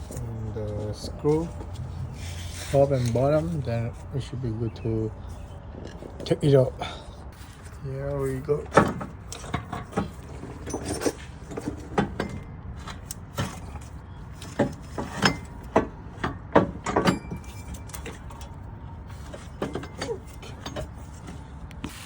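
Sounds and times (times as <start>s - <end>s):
low background rumble: 0.0s - 22.0s
metal clunks and knocks: 8.5s - 21.5s.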